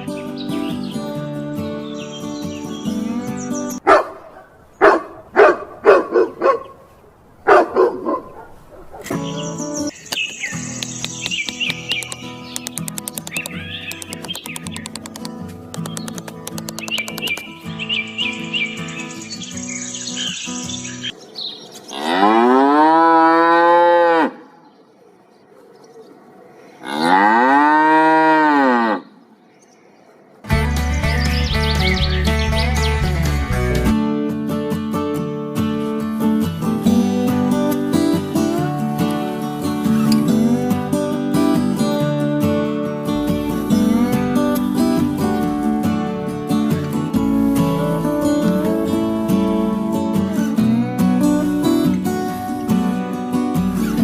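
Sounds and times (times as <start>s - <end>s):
dog barking: 3.8s - 9.2s
cow mooing: 21.9s - 24.4s, 26.8s - 29.2s
background music: 30.5s - 54.0s.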